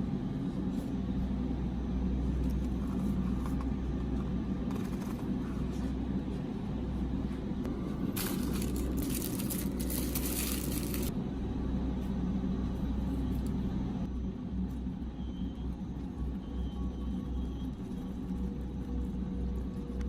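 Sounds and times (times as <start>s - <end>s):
steady low hum: 0.0s - 20.0s
snack packaging crinkling: 8.2s - 11.1s.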